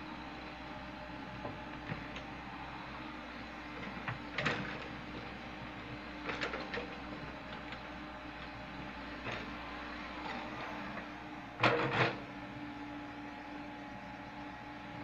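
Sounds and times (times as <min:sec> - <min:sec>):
excavator diesel engine running: 0:00.0 - 0:15.0
knocks and clanks of machine: 0:11.6 - 0:12.3.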